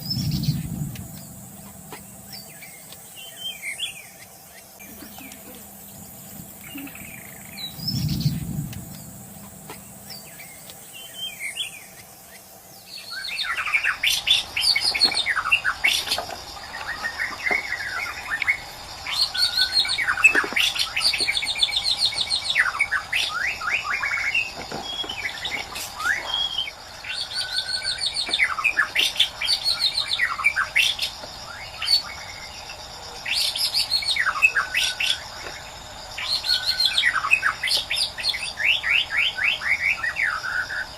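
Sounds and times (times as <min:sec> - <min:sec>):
bird singing whistles and trills: 0:12.8 - 0:32.4.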